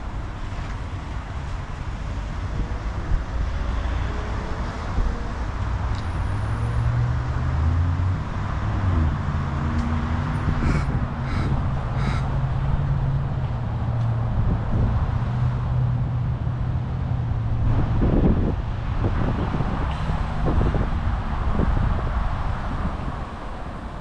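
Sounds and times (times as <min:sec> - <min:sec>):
wind and road noise: 0:00.0 - 0:24.0
crow cawing: 0:10.6 - 0:12.3.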